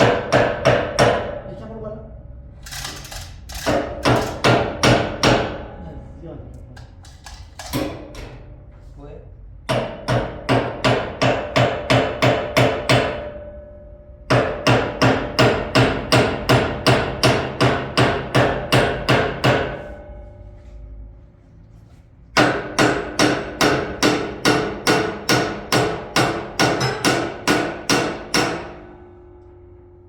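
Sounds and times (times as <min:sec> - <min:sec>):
hammer striking metal: 0:00.0 - 0:01.5, 0:03.5 - 0:06.2, 0:07.6 - 0:08.7, 0:09.7 - 0:20.8, 0:22.4 - 0:29.8.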